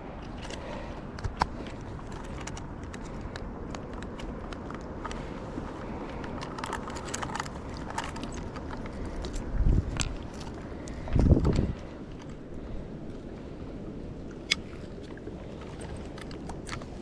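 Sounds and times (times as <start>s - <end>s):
handling clicks and rattles: 5.9s - 12.4s, 14.5s - 17.0s
wind buffeting microphone: 7.5s - 17.0s.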